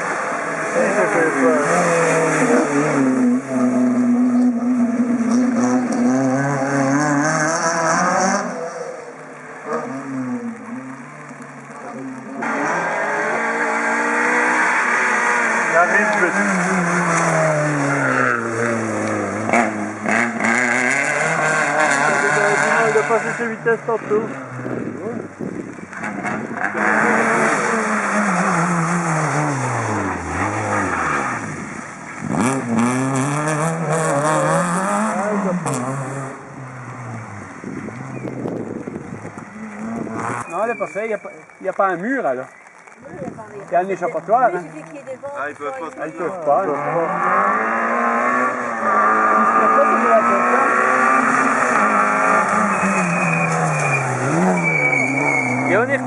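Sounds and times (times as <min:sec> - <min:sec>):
rally car engine revving: 0:00.0 - 0:40.8, 0:46.0 - 0:56.0
rally car engine passing by: 0:12.0 - 0:25.0, 0:46.5 - 0:56.0.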